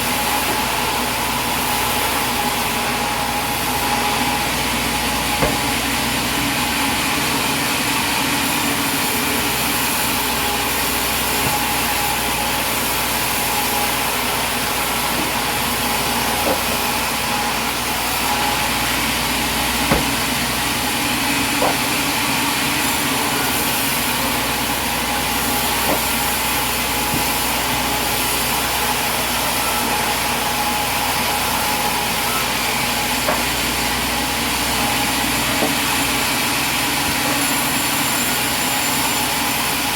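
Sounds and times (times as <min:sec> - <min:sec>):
sawmill machinery drone: 0:00.0 - 0:39.9
short knocks: 0:05.4 - 0:06.0, 0:16.3 - 0:16.9, 0:19.8 - 0:20.5, 0:21.5 - 0:22.2, 0:25.8 - 0:26.4, 0:33.2 - 0:33.7.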